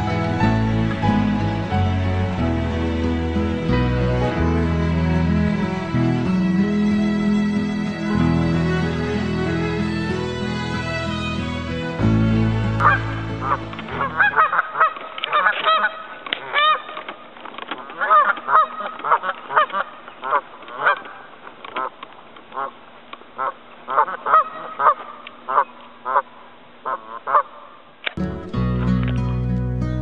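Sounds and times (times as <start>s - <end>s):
background music: 0.0s - 14.5s, 28.2s - 30.0s
birds calling harshly: 12.8s - 17.1s, 17.8s - 22.0s, 23.4s - 27.8s.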